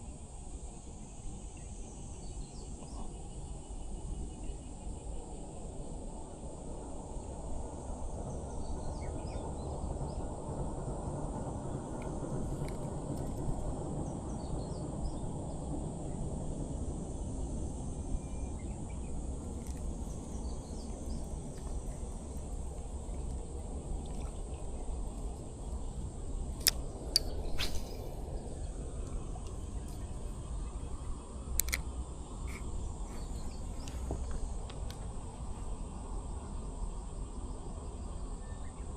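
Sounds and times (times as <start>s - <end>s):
high insect drone: 0.0s - 38.9s
faint bird chirps: 18.1s - 34.6s
sharp clicks: 19.5s - 28.2s, 31.5s - 34.0s.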